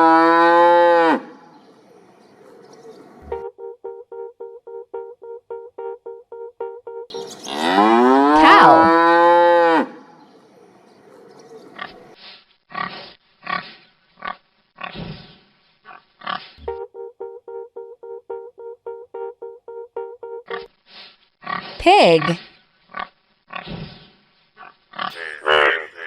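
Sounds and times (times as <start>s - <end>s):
cow mooing: 0.0s - 1.3s, 7.4s - 10.0s.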